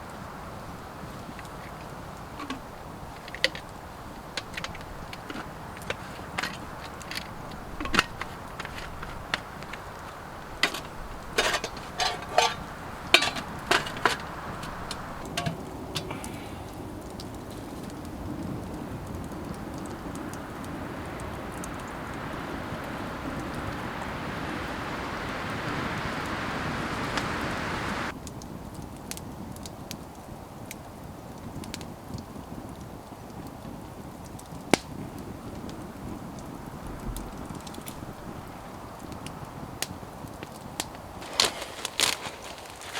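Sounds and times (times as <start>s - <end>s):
campfire pops and crackles: 0.0s - 42.9s
steady background hiss: 0.0s - 42.9s
sharp knocks and clinks: 10.6s - 16.1s.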